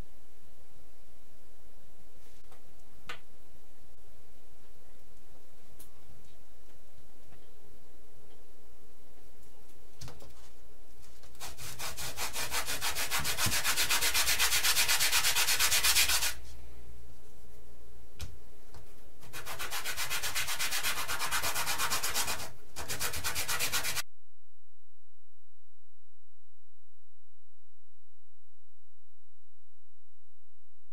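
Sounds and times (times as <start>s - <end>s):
hand sanding strokes: 11.4s - 16.4s, 19.2s - 24.0s.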